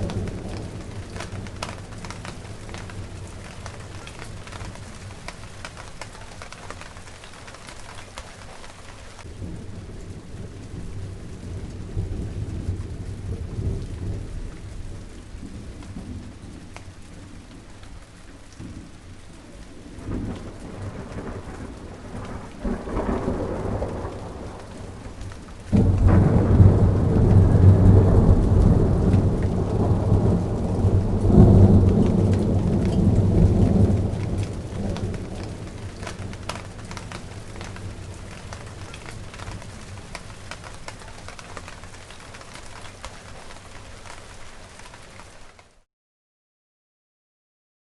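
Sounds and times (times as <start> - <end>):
thunder rumbling: 0.0 - 44.3
rain falling on plants: 0.0 - 45.9
water drips: 24.5 - 45.7.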